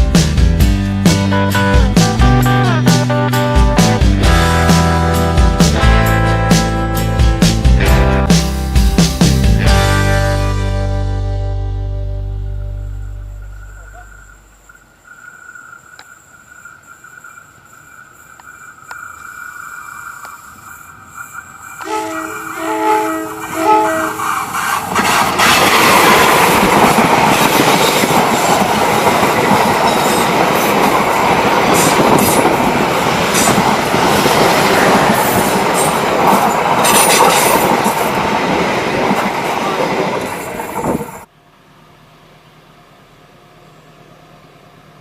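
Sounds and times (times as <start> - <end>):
train rumbling past: 12.9 - 41.3
train horn blasts: 21.8 - 24.4.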